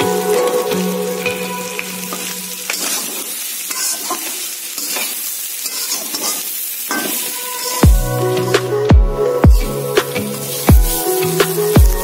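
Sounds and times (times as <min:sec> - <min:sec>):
food sizzling in a wok: 0:00.0 - 0:12.0
spatula scraping metal pan: 0:02.2 - 0:07.8.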